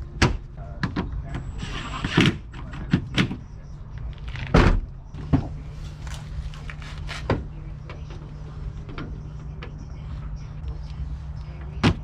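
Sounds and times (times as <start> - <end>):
knocks and clunks of car parts: 0.0 - 1.5, 4.4 - 5.6, 11.6 - 12.0
steady low hum: 0.0 - 12.0.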